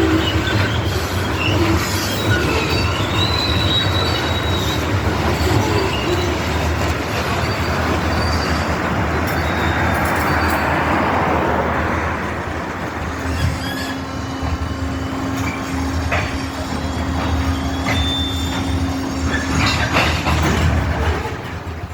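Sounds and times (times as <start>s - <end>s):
high wheel squeal: 0.0s - 11.7s, 13.0s - 21.4s
freight train rolling: 0.0s - 21.9s.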